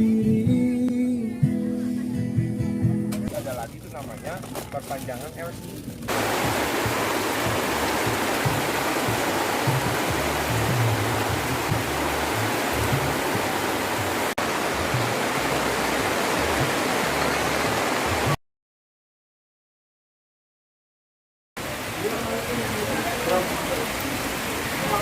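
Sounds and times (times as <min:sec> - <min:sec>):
background music with bass line: 0:00.0 - 0:03.6, 0:05.7 - 0:18.4
steady rushing noise: 0:06.1 - 0:18.4.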